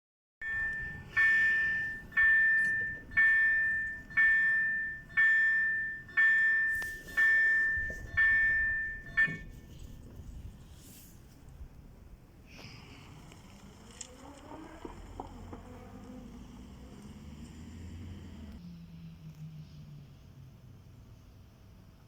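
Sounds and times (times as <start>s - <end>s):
level-crossing warning bell ringing: 0.4s - 9.6s.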